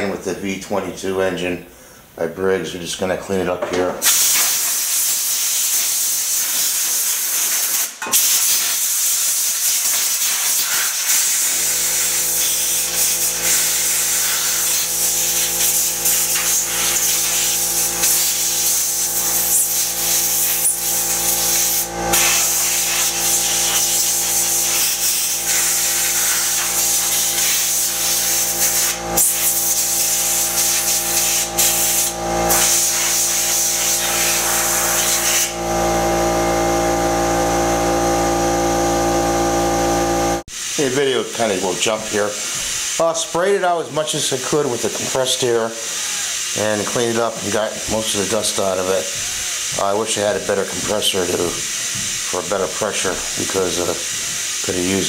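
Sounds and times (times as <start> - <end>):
compressed air hissing: 4.0 - 35.9, 40.4 - 55.0
steady hum: 11.2 - 42.8.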